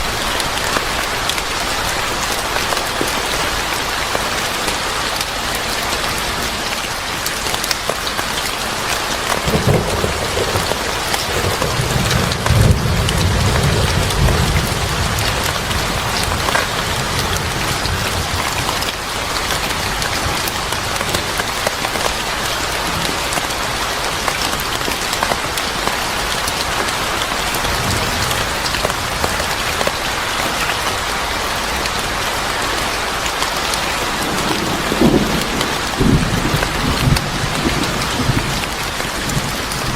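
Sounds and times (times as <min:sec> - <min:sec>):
heavy rain falling: 0:00.0 - 0:39.9
thunder rumbling: 0:09.4 - 0:19.0, 0:34.1 - 0:39.9.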